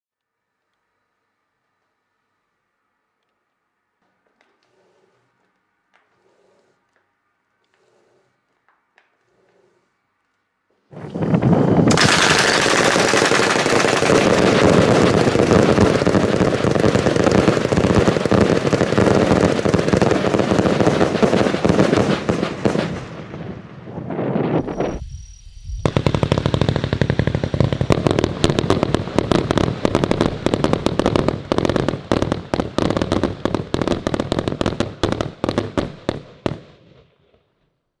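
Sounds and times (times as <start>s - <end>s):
firework battery bangs: 10.9s - 36.7s.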